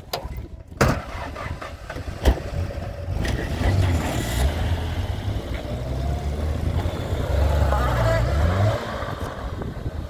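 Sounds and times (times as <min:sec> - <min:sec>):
car engine starting and running: 0:00.0 - 0:10.0.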